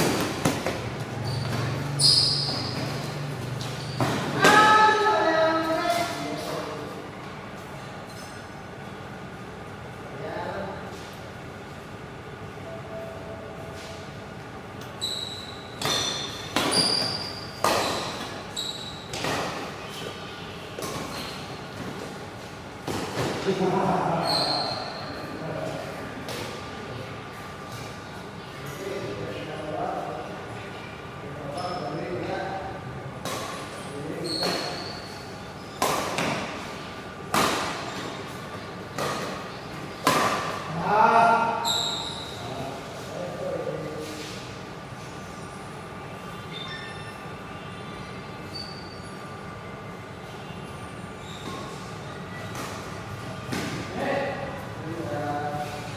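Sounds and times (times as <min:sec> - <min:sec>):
shoes squeaking on court floor: 0:00.0 - 0:05.0, 0:14.8 - 0:23.6, 0:24.2 - 0:25.4, 0:33.4 - 0:40.7, 0:41.4 - 0:43.1, 0:48.4 - 0:49.3, 0:51.2 - 0:54.7
racket hitting shuttlecock: 0:15.8 - 0:18.4, 0:35.8 - 0:36.7, 0:37.3 - 0:38.4, 0:39.0 - 0:40.6.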